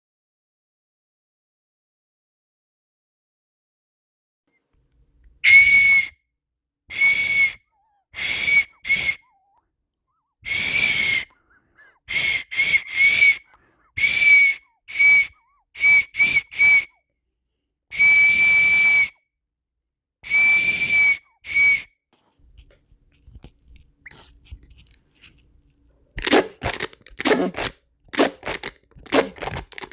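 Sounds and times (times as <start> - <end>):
whistle toots: 5.4 - 6.2, 6.9 - 9.6, 10.4 - 11.4, 12.1 - 17.0, 17.9 - 19.3, 20.2 - 21.9.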